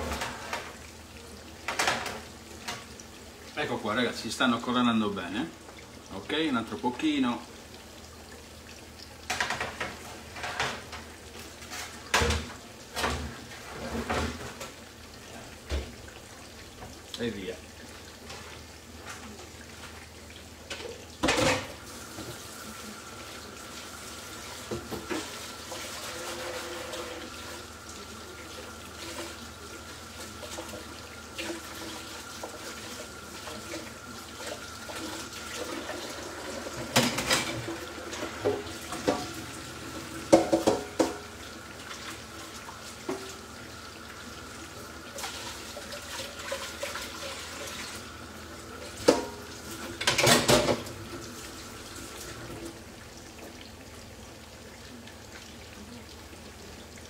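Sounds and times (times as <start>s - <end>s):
food frying in hot oil: 0.0s - 57.0s
dishes and pans clattering: 1.6s - 2.9s, 9.2s - 14.8s, 20.7s - 22.4s, 36.7s - 39.4s, 40.3s - 41.3s, 48.9s - 50.9s.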